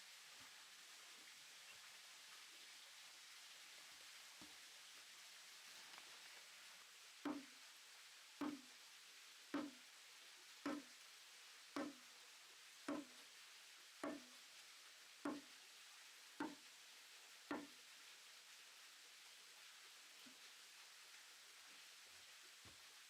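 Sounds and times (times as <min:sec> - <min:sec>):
tool knocking on timber: 0:07.3 - 0:07.5, 0:08.4 - 0:08.6, 0:09.6 - 0:09.8, 0:10.7 - 0:10.9, 0:11.8 - 0:12.0, 0:12.9 - 0:13.1, 0:14.0 - 0:14.3, 0:16.4 - 0:16.6, 0:17.5 - 0:17.7.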